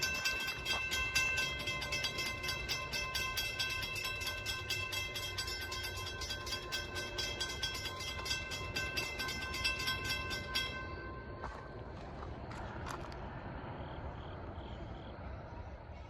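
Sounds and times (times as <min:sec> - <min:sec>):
crossing bell ringing rapidly: 0:00.0 - 0:11.5.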